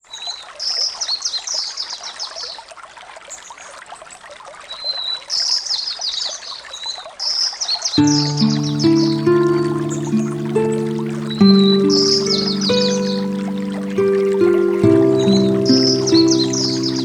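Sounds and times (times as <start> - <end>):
trickling stream: 0.0 - 17.0
music with low held notes: 8.0 - 17.0
songbird singing: 8.0 - 17.0.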